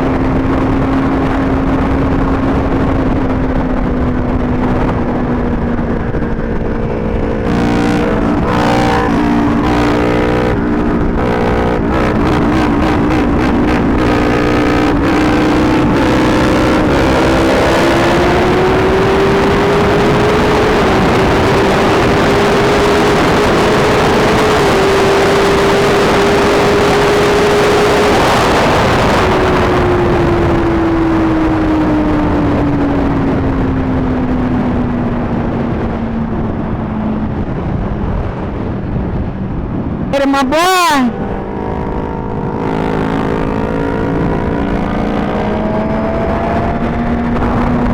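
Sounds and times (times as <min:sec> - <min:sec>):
motorcycle engine: 0:00.0 - 0:20.3, 0:41.1 - 0:47.9
wind rush on microphone: 0:00.0 - 0:40.5, 0:41.1 - 0:47.9.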